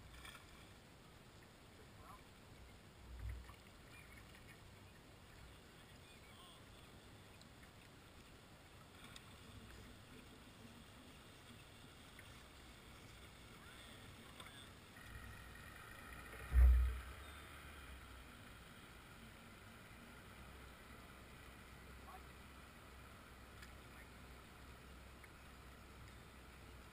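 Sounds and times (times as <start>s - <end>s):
water and hull noise: 0.0s - 26.9s
deep thump: 16.5s - 17.0s
light ticks: 23.5s - 24.0s, 26.0s - 26.3s.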